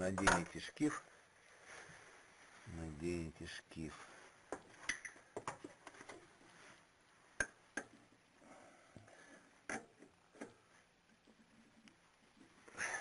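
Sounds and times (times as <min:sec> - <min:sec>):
sharp clicks and knocks: 0:00.0 - 0:00.6, 0:04.5 - 0:06.2.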